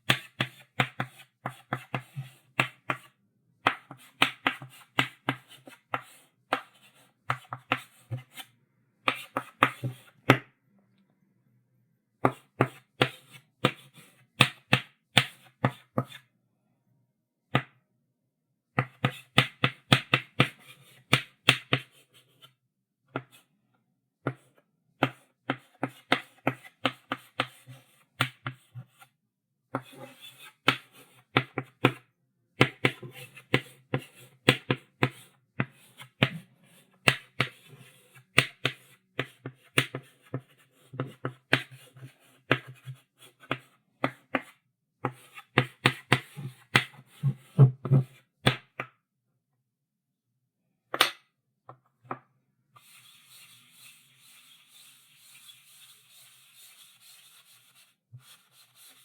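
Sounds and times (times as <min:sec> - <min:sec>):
chalk writing on blackboard: 0:32.6 - 0:48.2, 0:52.8 - 0:59.0.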